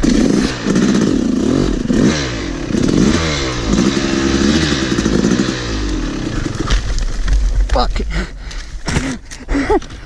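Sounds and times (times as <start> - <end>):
dirt bike engine revving: 0.0 - 7.0.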